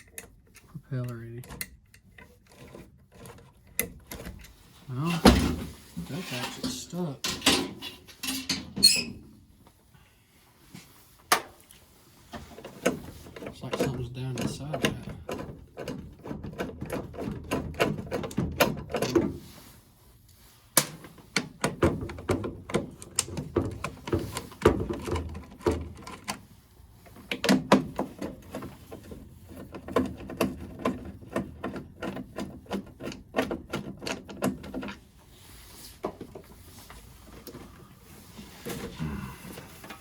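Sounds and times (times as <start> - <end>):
tools clicking and rattling: 6.6 - 9.1.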